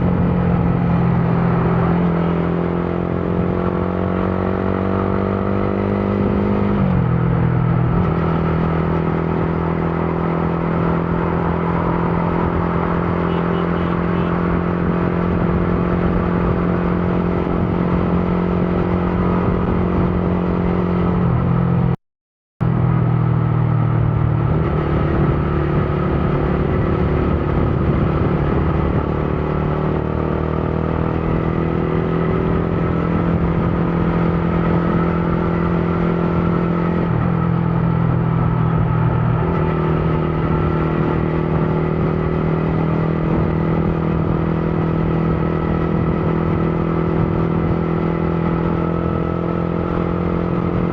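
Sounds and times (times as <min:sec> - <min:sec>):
motorcycle engine running: 0:00.0 - 0:21.9, 0:22.6 - 0:50.9.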